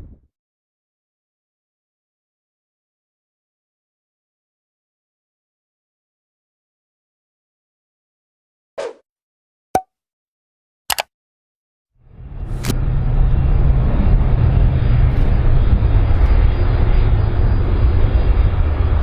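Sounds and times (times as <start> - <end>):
aircraft rumble: 12.1 - 19.0.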